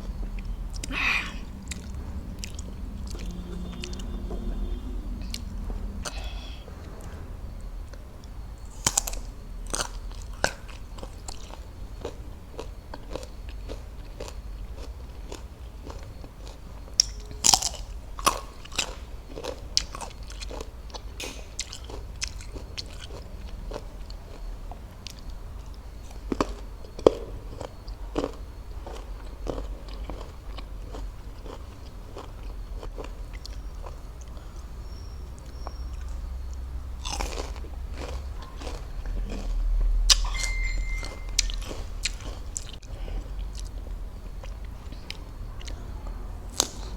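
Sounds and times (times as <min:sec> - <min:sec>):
crunchy bites of raw fruit: 0:08.6 - 0:23.8, 0:35.5 - 0:40.2.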